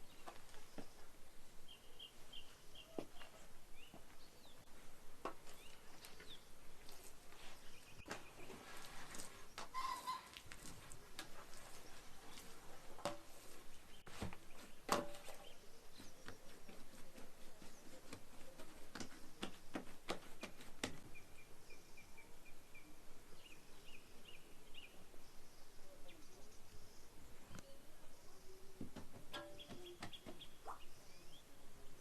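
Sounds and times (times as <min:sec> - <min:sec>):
bird chirping: 0:00.0 - 0:04.7, 0:05.5 - 0:06.6, 0:20.4 - 0:32.0.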